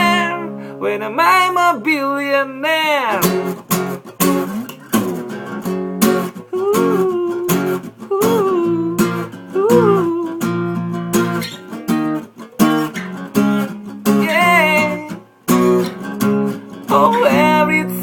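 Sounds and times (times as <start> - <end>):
person singing wordless phrases: 0.0 - 3.5, 6.4 - 10.8, 14.0 - 15.3, 16.8 - 18.0
acoustic guitar strumming: 0.0 - 18.0.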